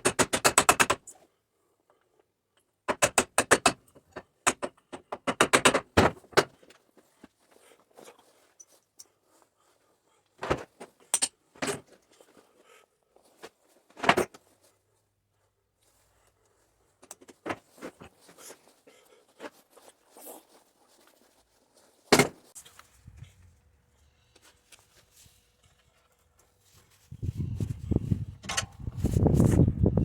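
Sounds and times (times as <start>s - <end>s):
tools being picked up and set down: 28.4s - 28.8s.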